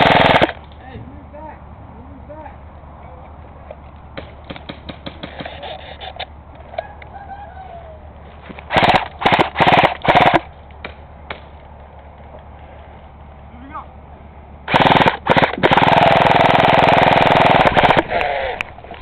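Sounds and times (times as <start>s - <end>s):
airsoft rifle full-auto bursts: 0.0s - 0.6s, 8.7s - 10.5s, 14.7s - 18.6s
distant airsoft guns popping: 3.7s - 5.7s.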